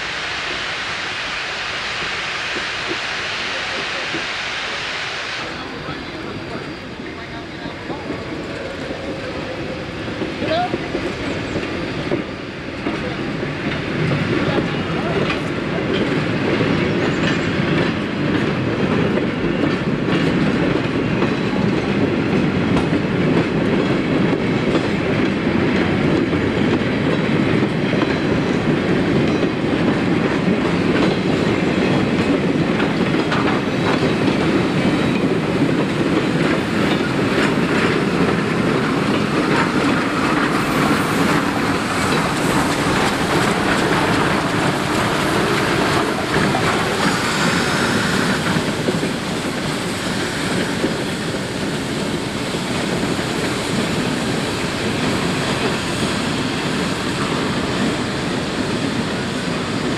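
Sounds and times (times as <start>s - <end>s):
steam locomotive: 0.0s - 59.9s
wheels clattering over rail joints: 26.7s - 49.7s.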